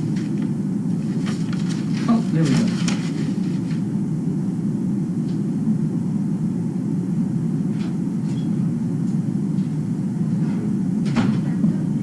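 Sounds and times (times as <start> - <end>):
paper rustling: 0.0 - 3.8.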